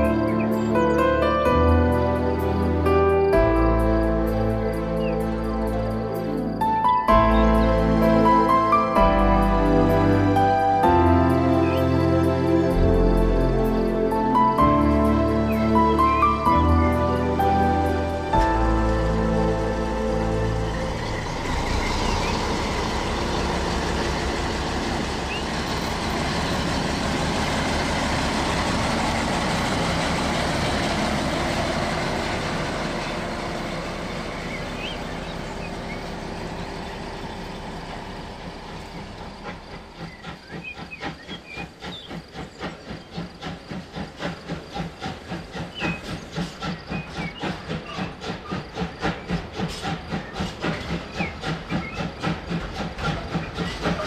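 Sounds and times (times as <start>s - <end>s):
steam exhaust chuffs: 3.4s - 54.0s
steam hissing: 38.6s - 54.0s.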